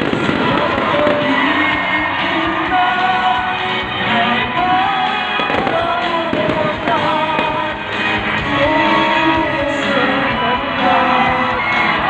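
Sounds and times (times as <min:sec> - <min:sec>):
fireworks crackling and popping: 0:00.0 - 0:03.6, 0:04.6 - 0:08.5
loud music: 0:00.0 - 0:12.0.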